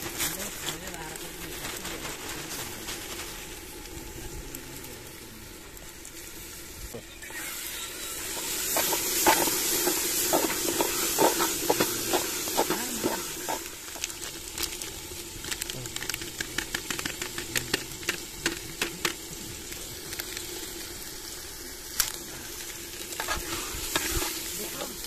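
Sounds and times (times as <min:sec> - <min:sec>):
paste sizzling in hot oil: 0:00.0 - 0:25.0
spatula scraping metal pot: 0:23.2 - 0:25.0.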